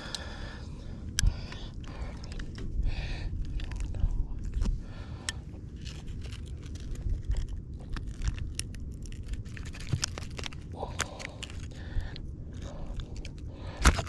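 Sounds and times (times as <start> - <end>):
steady low rumble: 0.0 - 14.0
sharp clicks and scraping: 3.3 - 14.0.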